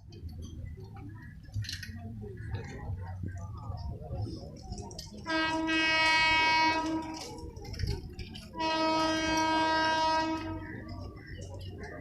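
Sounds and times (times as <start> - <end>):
locomotive horn blasts: 5.2 - 7.4, 8.6 - 10.8.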